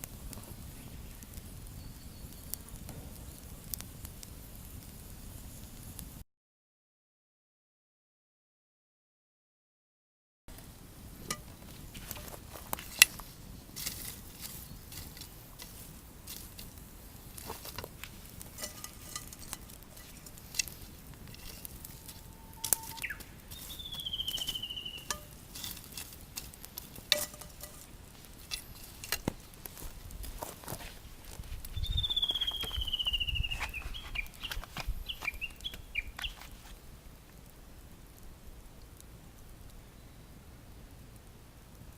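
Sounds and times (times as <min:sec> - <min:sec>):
food frying in oil: 0:10.5 - 0:36.8.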